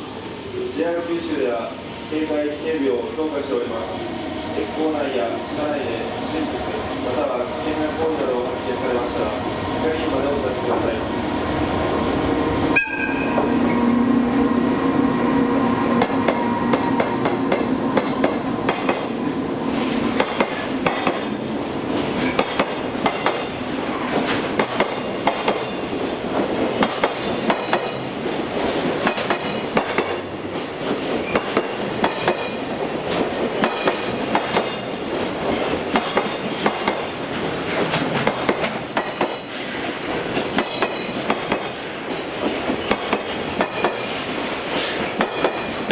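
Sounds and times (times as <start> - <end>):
train wheels clacking over rail joints: 15.9 - 45.9.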